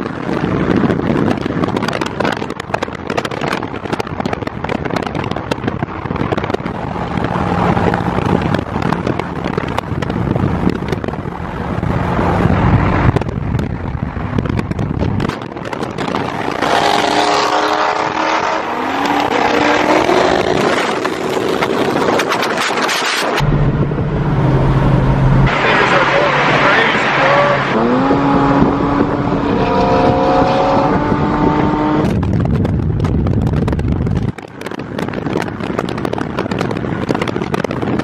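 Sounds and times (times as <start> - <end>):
car engines running hard: 0.0 - 38.0
car engine revving up: 6.1 - 32.3.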